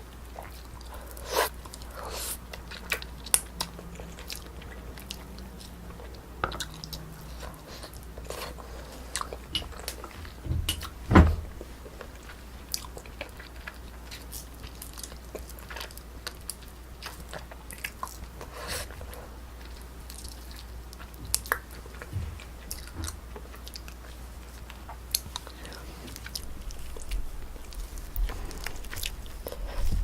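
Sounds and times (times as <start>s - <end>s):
chewing and biting food: 0.0s - 30.0s
thump: 10.2s - 11.6s.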